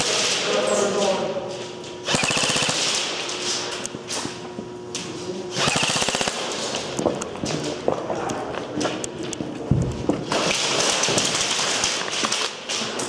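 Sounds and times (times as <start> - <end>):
airsoft gun automatic bursts: 2.1 - 3.2, 5.6 - 6.7.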